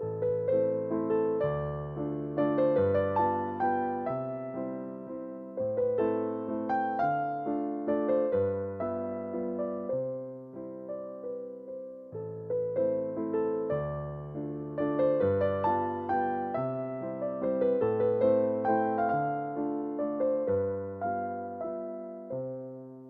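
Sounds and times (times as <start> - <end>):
gentle piano music: 0.0 - 23.0.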